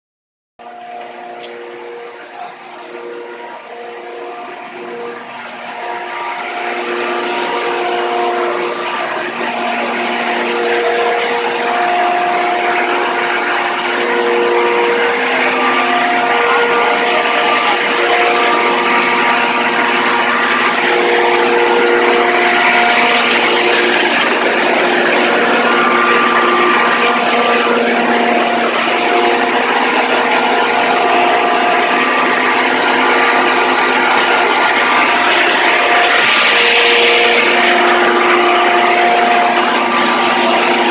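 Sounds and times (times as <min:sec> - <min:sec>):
machine whining tones: 0:00.6 - 0:40.9
threshing machine running: 0:00.6 - 0:40.9.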